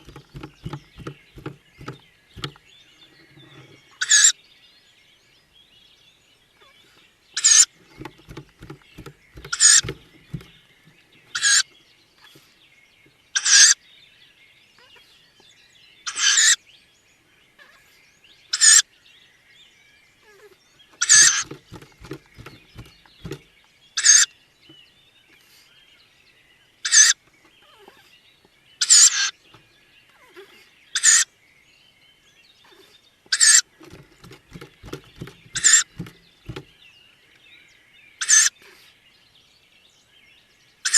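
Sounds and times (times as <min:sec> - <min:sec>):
soft rapid taps: 0:00.0 - 0:02.6, 0:08.0 - 0:10.6, 0:21.4 - 0:23.5, 0:33.8 - 0:36.7
faint bird chirping: 0:00.0 - 0:40.9
owl nestlings hissing begging calls: 0:07.4 - 0:10.6, 0:33.3 - 0:36.6.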